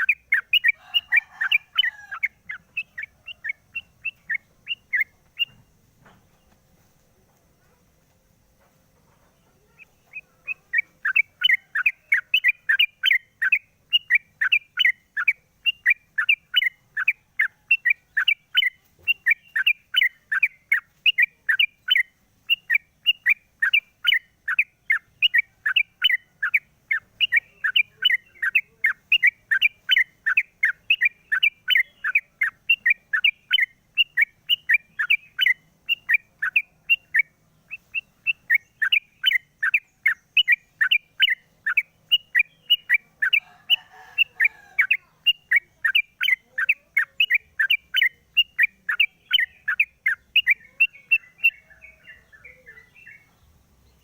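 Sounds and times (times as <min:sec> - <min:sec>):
bird chirping song: 0:00.0 - 0:54.0.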